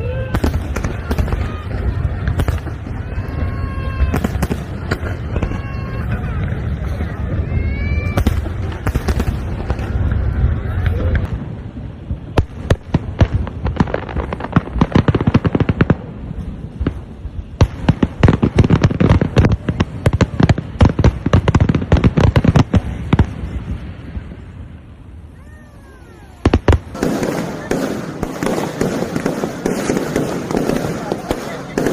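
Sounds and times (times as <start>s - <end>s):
fireworks bangs and crackles: 0.0s - 31.9s
faint pitched cry: 25.3s - 26.5s.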